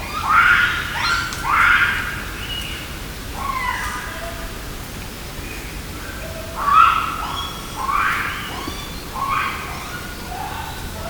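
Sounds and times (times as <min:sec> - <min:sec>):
wild animal calling: 0:06.2 - 0:11.0.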